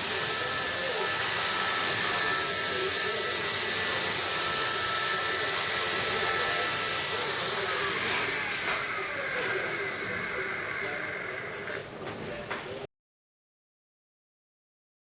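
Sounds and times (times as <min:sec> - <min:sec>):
rc helicopter motor whining: 0:00.0 - 0:11.8.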